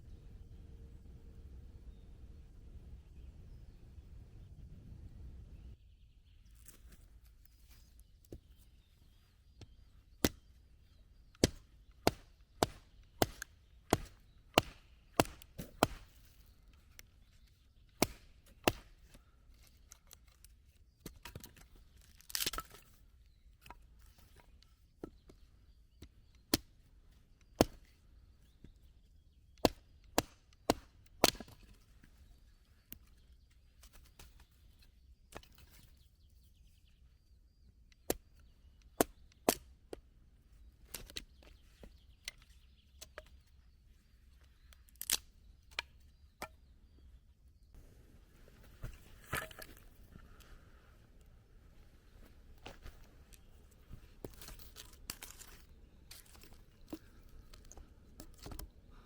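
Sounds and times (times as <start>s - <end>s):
wood being chopped: 9.6s - 10.5s, 11.3s - 16.4s, 17.9s - 19.1s, 27.4s - 27.9s, 29.5s - 31.8s, 38.1s - 38.3s, 39.0s - 39.7s, 48.6s - 49.9s
wood crunching crack: 11.3s - 17.1s, 21.0s - 22.9s, 44.7s - 46.6s, 52.1s - 58.8s.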